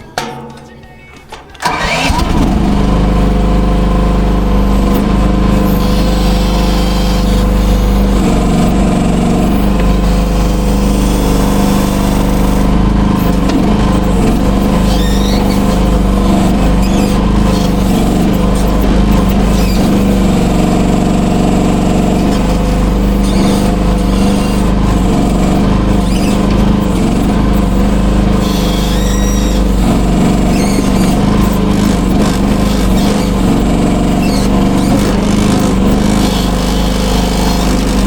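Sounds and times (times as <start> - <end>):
excavator engine running: 0.0 - 38.0
short high squeak: 13.2 - 18.7, 19.3 - 38.0.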